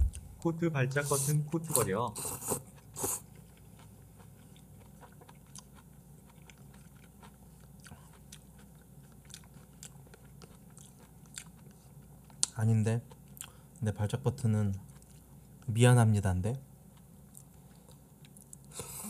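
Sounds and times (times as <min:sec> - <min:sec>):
person chewing food: 0:01.6 - 0:13.9, 0:14.7 - 0:15.7, 0:16.9 - 0:19.0.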